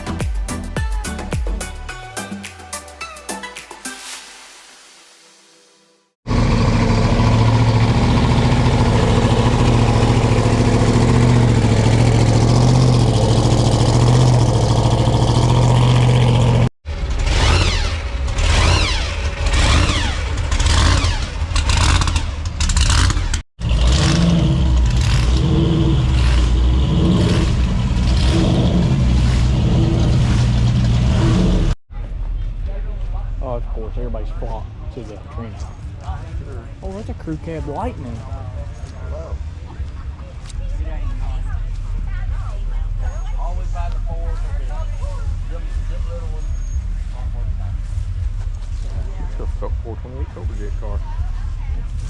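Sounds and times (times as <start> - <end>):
car engine revving: 6.3 - 31.8
car engine idling: 6.3 - 52.0.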